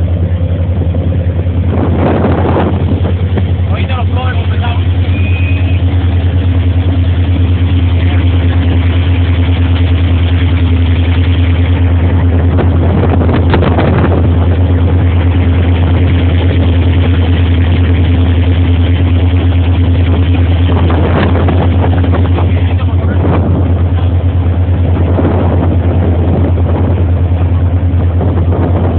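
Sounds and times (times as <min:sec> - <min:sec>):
motorboat engine running: 0:00.0 - 0:28.9.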